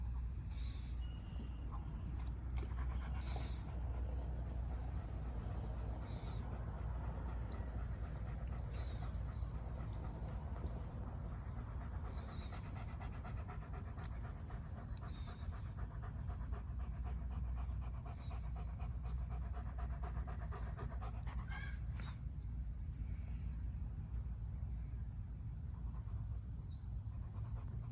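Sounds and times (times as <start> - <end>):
dog panting: 1.8 - 22.2, 27.0 - 27.9.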